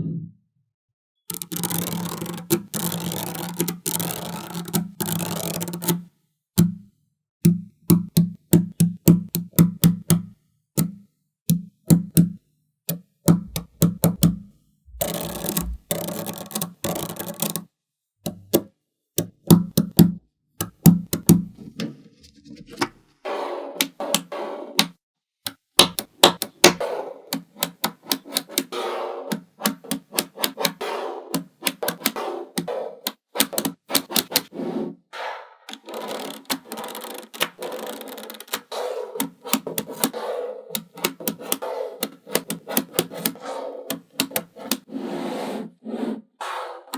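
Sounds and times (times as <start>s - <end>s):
magnetic balls clicking together: 1.3s - 6.0s, 13.3s - 17.6s, 35.7s - 44.8s
low hum: 13.5s - 15.9s.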